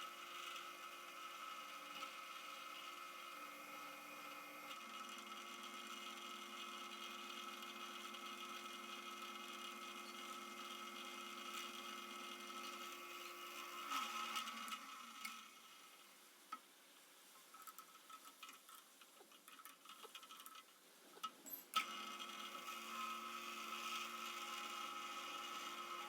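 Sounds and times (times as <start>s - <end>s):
small electric motor running: 21.8s - 26.0s.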